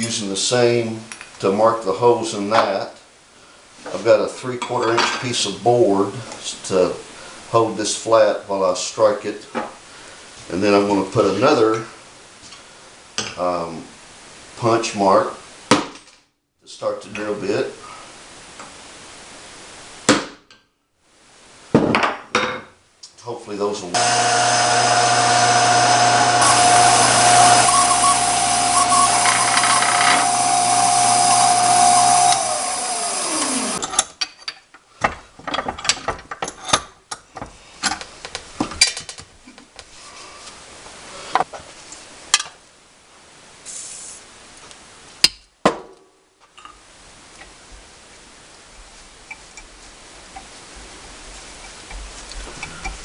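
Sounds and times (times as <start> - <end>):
drill press motor hum and whine: 24.0 - 33.8.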